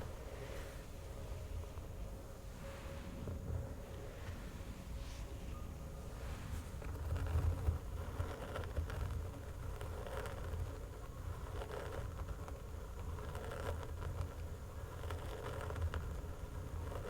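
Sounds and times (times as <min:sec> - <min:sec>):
fingernails scratching: 0:06.4 - 0:17.0.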